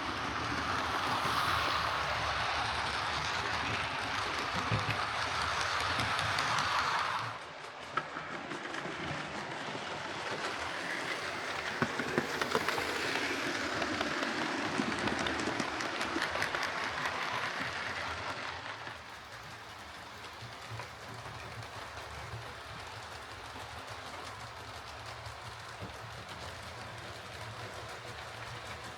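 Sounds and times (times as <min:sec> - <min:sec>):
model train motor whirring: 0:00.0 - 0:28.9.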